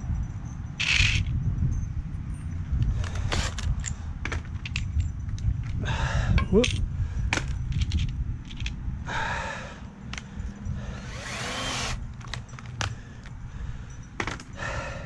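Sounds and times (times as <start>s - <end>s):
drill whirring: 3.3s - 3.6s, 10.9s - 12.1s.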